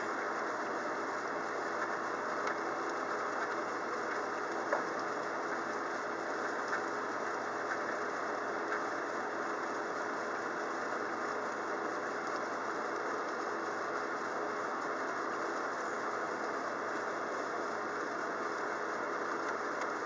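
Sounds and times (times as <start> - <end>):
low steady hum: 0.0 - 20.0
steady rain hiss: 0.0 - 20.0
faint rain taps: 0.1 - 10.3.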